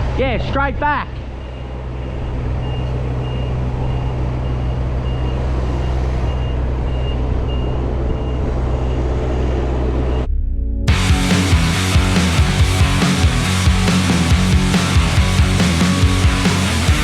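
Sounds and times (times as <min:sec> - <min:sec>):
diesel truck engine running: 0:01.1 - 0:10.3, 0:10.9 - 0:17.0
reversing alarm beeping: 0:01.2 - 0:10.4.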